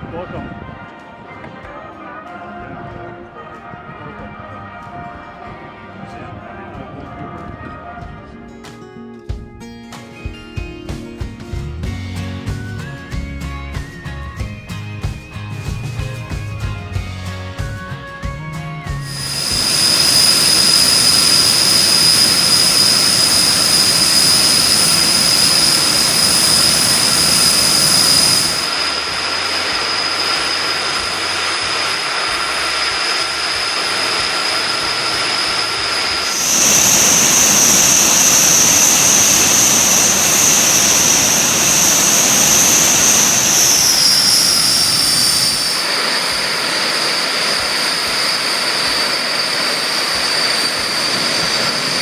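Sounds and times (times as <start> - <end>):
high turbine whine: 19.0 - 52.0
jet engine roar: 19.0 - 52.0.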